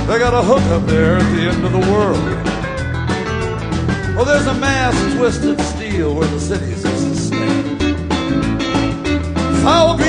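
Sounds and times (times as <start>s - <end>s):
person singing: 0.0s - 2.6s, 4.2s - 7.7s, 9.5s - 10.0s
country band playing: 0.0s - 10.0s.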